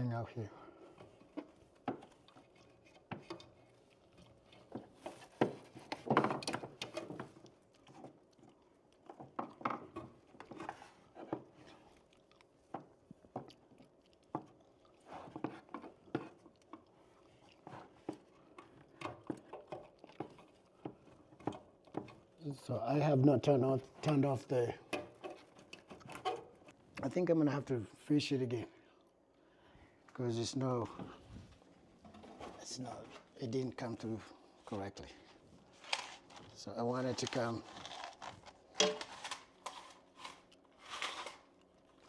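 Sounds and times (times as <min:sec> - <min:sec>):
wire scraping against plastic: 0:35.7 - 0:41.6.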